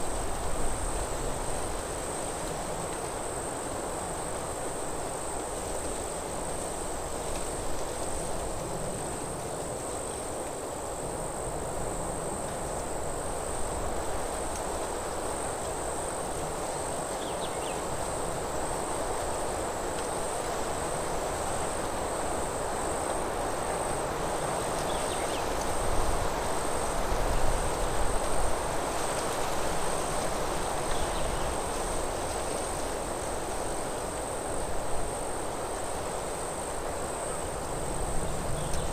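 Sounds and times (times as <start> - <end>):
wind in trees: 0.0 - 38.9
high-pitched insect trill: 12.0 - 29.1.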